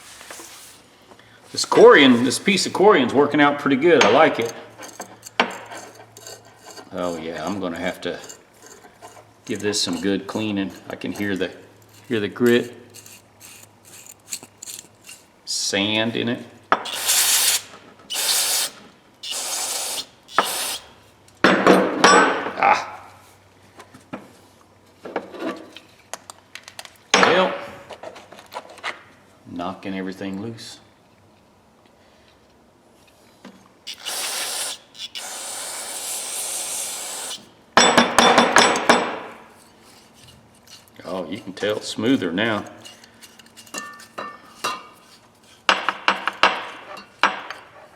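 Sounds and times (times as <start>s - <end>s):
aerosol spray hisses: 16.9s - 20.9s, 33.9s - 37.4s.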